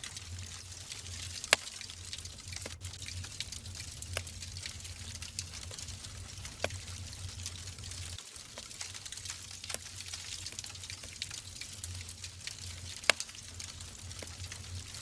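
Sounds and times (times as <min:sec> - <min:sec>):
low steady hum: 0:00.0 - 0:08.2
fire crackling: 0:00.0 - 0:15.0.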